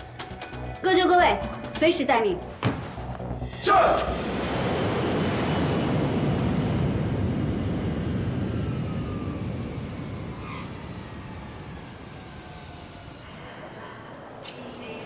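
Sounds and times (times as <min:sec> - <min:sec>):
jet airliner engines roaring: 0:03.9 - 0:13.5.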